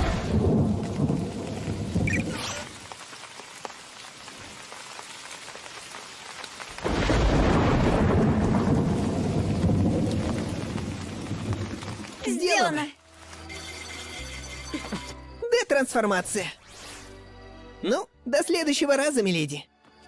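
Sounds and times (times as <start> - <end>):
thunder rumble: 0.0 - 2.9, 6.8 - 12.2
heavy rain: 0.0 - 13.6.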